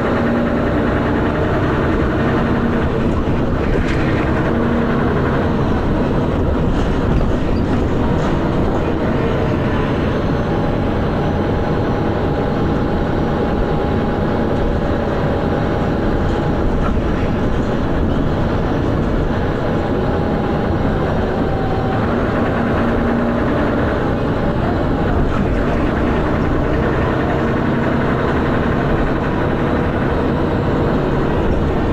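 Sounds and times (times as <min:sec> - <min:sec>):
bus engine rumbling: 0:00.0 - 0:31.9
loud knocking noise: 0:25.3 - 0:31.9.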